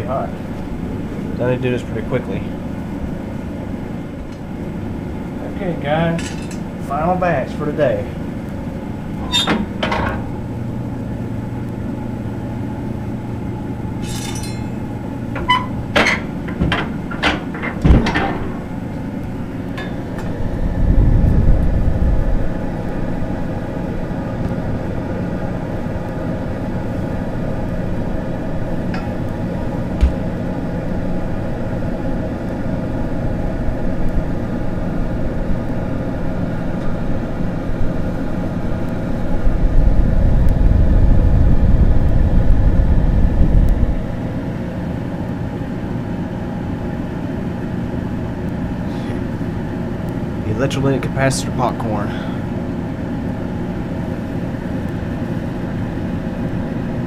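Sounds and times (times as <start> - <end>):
stove blower fan humming: 0.0 - 57.0
metal shovel clanking on stove: 6.1 - 6.6, 14.0 - 14.8
low rumble: 18.6 - 23.7, 39.2 - 44.2.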